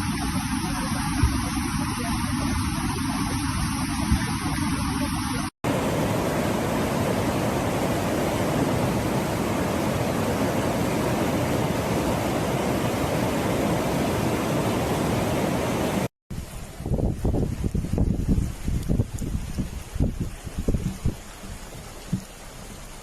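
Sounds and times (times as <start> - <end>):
rush of fast-flowing floodwater: 0.0 - 23.0.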